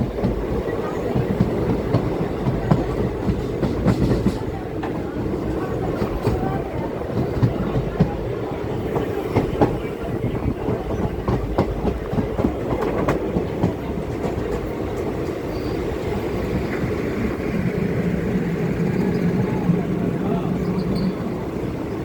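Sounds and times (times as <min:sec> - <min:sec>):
wheels clicking over rail joints: 0:00.0 - 0:17.0
train coach rumbling on track: 0:00.0 - 0:22.0.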